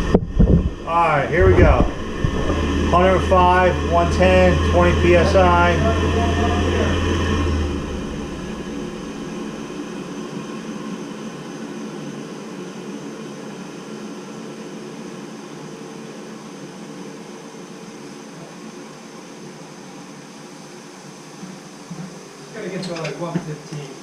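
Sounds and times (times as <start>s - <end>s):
deep hum: 0.0s - 11.7s
water heater blower whirring: 0.0s - 24.0s.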